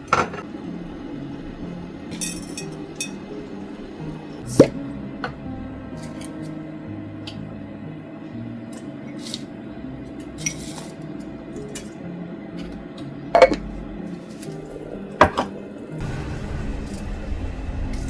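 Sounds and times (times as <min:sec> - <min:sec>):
dishes clinking: 0:00.0 - 0:00.5, 0:02.1 - 0:03.6, 0:10.2 - 0:12.0, 0:12.6 - 0:15.8
low rushing noise: 0:16.0 - 0:18.0.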